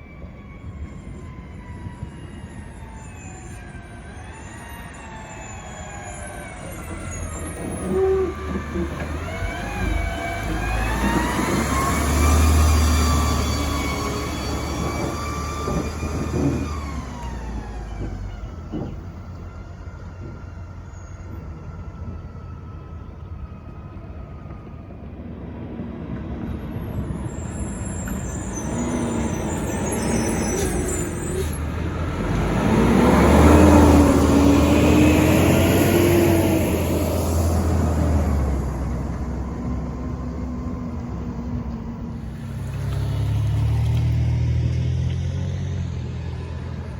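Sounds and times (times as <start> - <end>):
garbage trucks driving past: 0.0 - 46.9.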